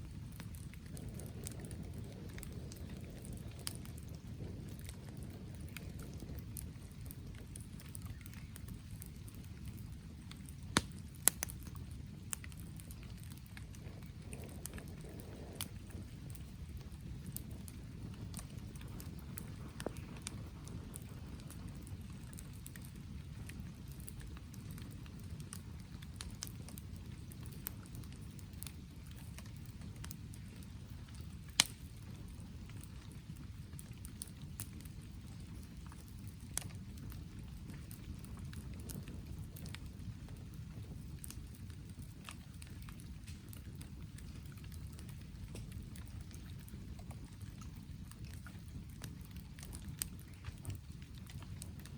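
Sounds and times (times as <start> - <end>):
fire pops: 0.0 - 51.9
rain pattering: 0.0 - 51.9
wood fire crackling: 0.0 - 51.9.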